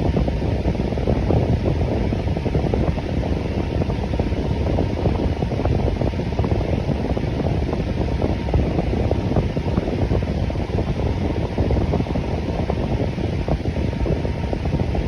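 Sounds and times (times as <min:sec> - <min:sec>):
electric fan running: 0:00.0 - 0:15.0.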